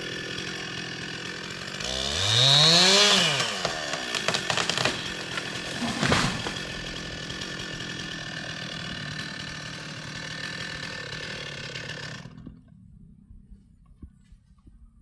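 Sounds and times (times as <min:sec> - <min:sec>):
chainsaw running: 0:00.0 - 0:12.8.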